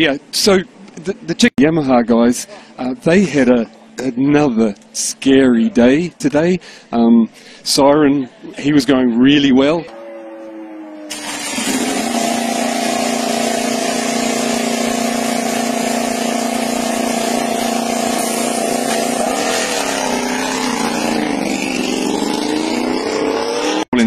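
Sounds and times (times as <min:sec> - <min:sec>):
racing motorcycle engine: 0:09.8 - 0:24.0.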